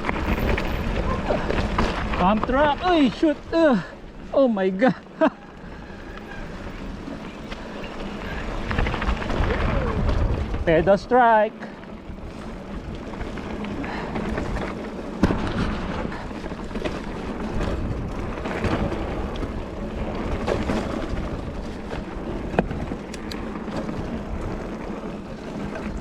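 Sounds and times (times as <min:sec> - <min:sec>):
bike tyre rumble on dirt: 0:00.0 - 0:26.0
wind buffeting microphone: 0:05.4 - 0:11.1, 0:11.8 - 0:26.0.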